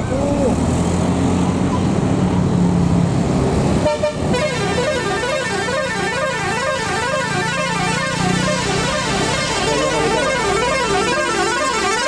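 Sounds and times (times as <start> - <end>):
bus engine running: 0.0 - 12.0
bus horn tones swooping in pitch: 3.8 - 12.0.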